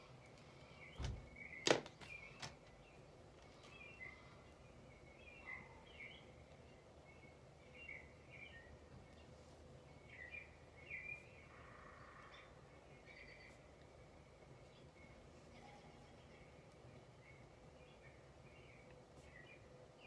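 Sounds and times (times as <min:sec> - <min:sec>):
small birds chirping faintly: 0:00.0 - 0:20.0
low background rumble: 0:00.9 - 0:01.6.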